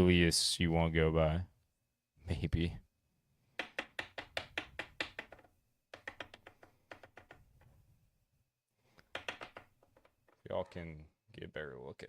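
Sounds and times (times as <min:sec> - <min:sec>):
typing on computer keyboard: 0:06.0 - 0:07.4.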